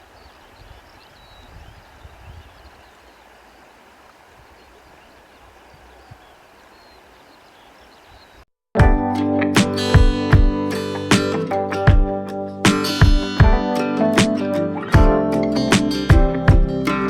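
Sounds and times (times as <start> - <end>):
distant birds chirping: 0.0 - 8.5.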